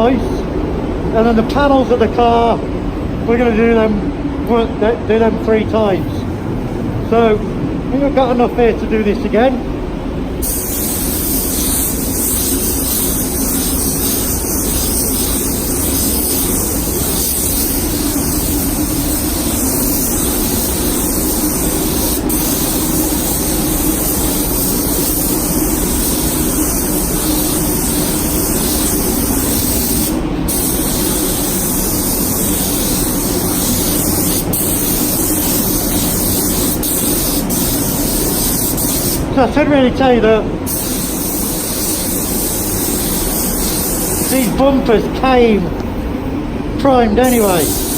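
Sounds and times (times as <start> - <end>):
spray gun hissing: 10.4 - 39.4, 40.6 - 45.1, 47.2 - 47.9.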